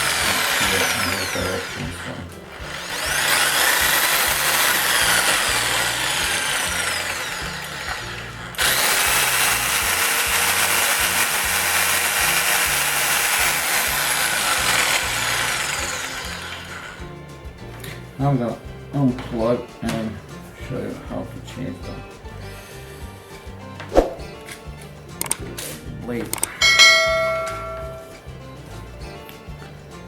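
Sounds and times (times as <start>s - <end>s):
jigsaw motor whining: 0.0s - 17.2s.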